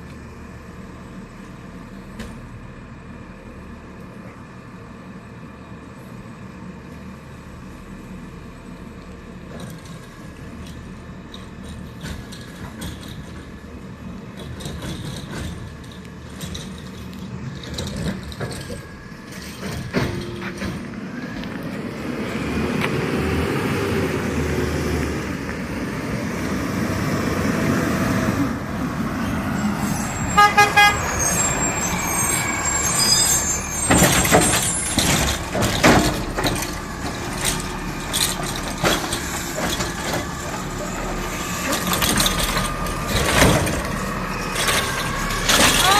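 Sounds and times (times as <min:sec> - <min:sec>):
garbage truck engine running: 0:00.0 - 0:45.9
truck horn toots: 0:30.2 - 0:31.7
loud clatters: 0:33.4 - 0:45.9.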